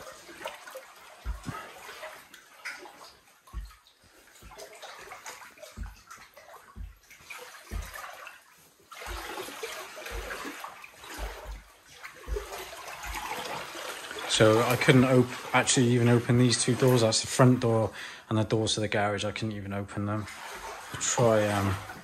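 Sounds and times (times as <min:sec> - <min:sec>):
water sloshing around legs: 0:00.0 - 0:17.9, 0:20.2 - 0:22.0
low thud of footsteps: 0:01.2 - 0:02.0, 0:03.3 - 0:15.5.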